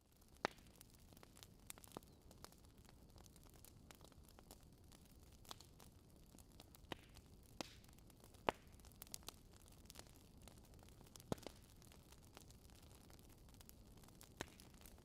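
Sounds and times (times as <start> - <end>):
fire crackling with sharp pops: 0.0 - 15.0.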